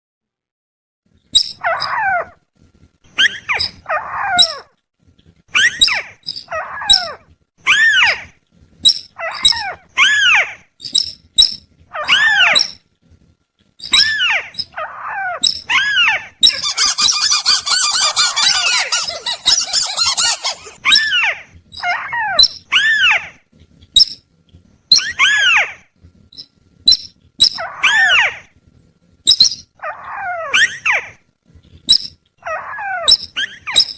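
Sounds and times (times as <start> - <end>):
rattling bird trill: 16.4 - 20.8
bird calls rising and falling: 16.5 - 20.8.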